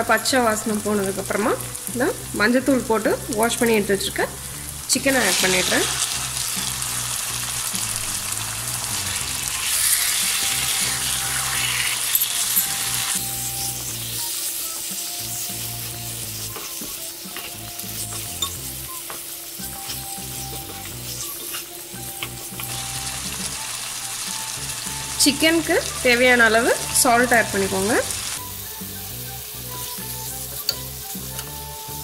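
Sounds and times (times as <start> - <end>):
chicken sizzling in hot oil: 0.0 - 32.0
spatula scraping and tapping: 16.5 - 22.8.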